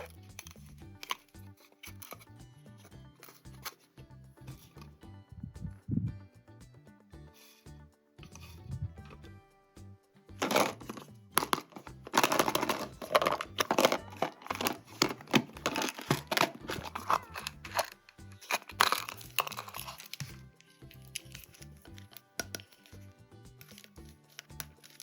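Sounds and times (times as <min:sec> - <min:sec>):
soft background music: 0:00.0 - 0:25.0
packaging crinkling and tearing: 0:10.4 - 0:22.2.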